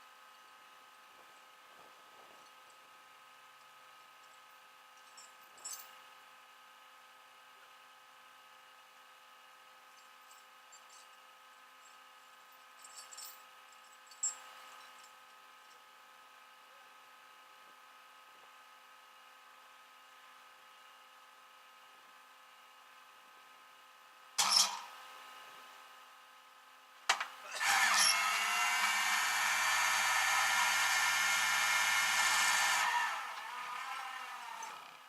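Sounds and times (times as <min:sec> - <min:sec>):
power tool running: 0:27.4 - 0:35.0.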